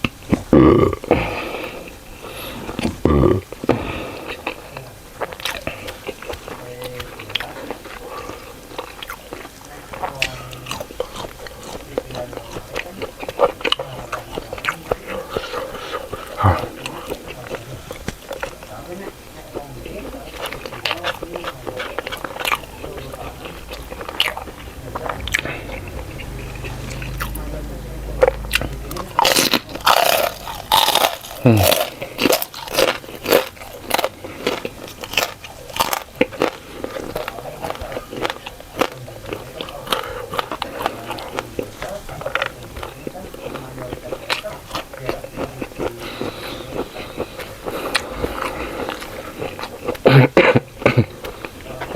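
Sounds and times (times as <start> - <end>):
chewing food: 0.0 - 51.9.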